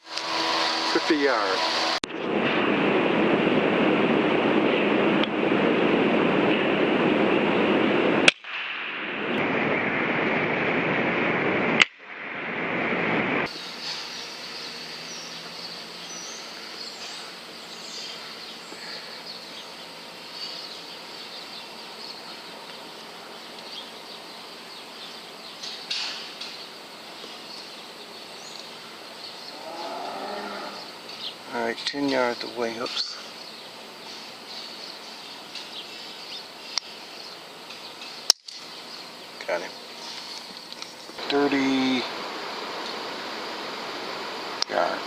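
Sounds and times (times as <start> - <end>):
loud rushing noise: 0.0 - 22.6
air rifle shots: 8.2 - 9.1
small birds chirping: 13.5 - 42.1.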